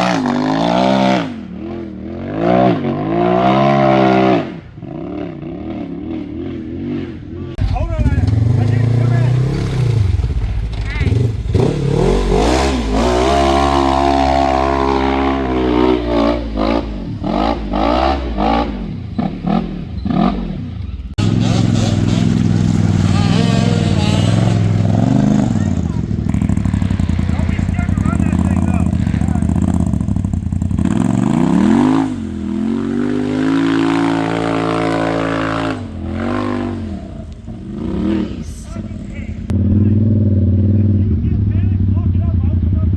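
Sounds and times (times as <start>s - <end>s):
off-road vehicle engine revving: 0.0s - 42.9s.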